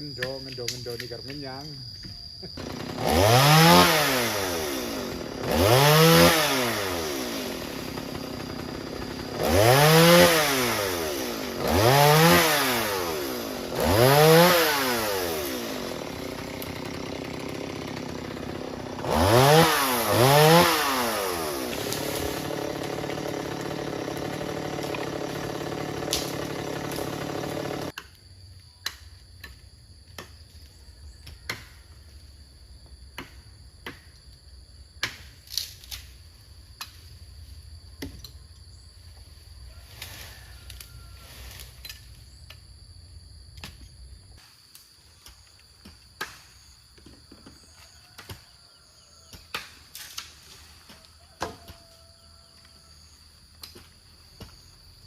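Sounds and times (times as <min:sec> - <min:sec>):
chainsaw revving and idling: 0:02.5 - 0:28.0.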